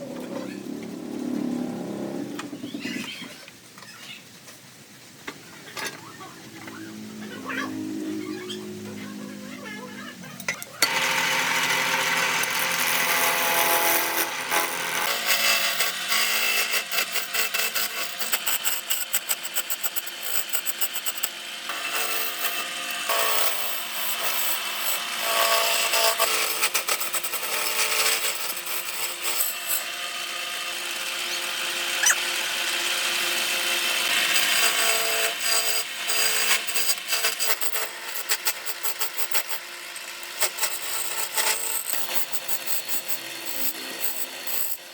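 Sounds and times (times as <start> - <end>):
tool cutting wood: 10.8 - 44.9.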